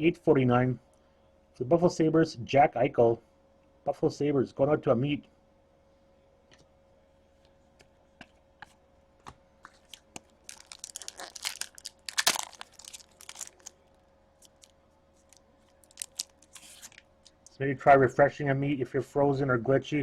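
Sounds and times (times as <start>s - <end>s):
packaging crinkling and tearing: 9.7s - 17.5s.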